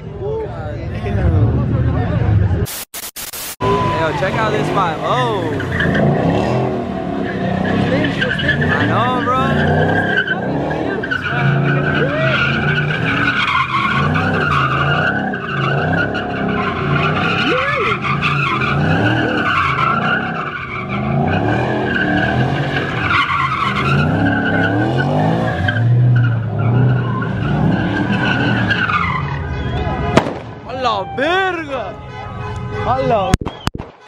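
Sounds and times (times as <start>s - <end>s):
car tires squealing: 3.6s - 32.5s
car engine revving: 3.7s - 30.7s.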